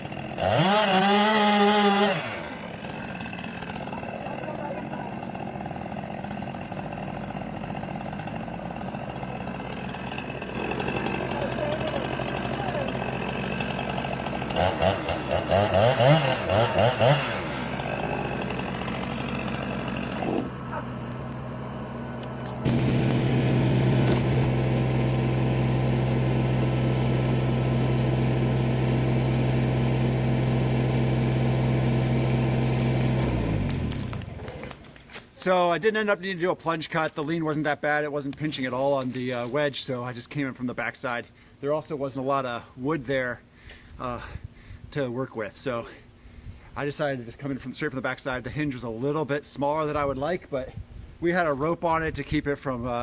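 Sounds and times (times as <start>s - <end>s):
chainsaw engine running: 0.0s - 35.2s.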